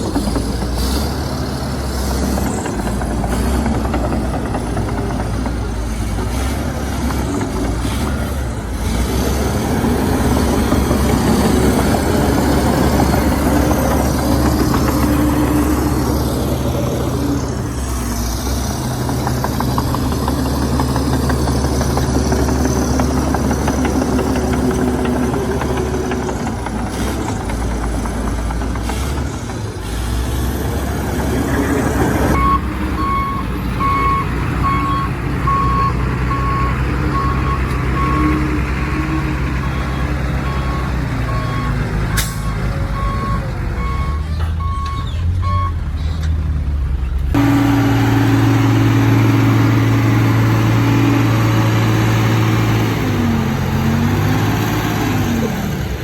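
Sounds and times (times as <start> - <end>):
bulldozer diesel engine running: 0.0 - 56.0
reversing alarm beeping: 32.3 - 45.8.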